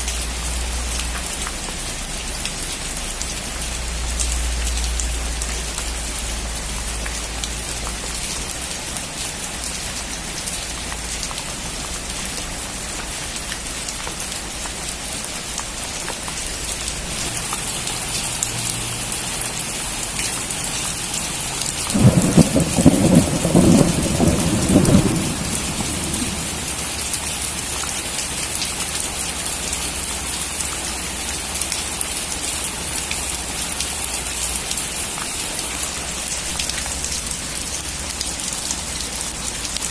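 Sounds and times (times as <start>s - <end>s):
rain pattering: 0.0s - 39.9s
thunder rumbling: 21.9s - 27.4s.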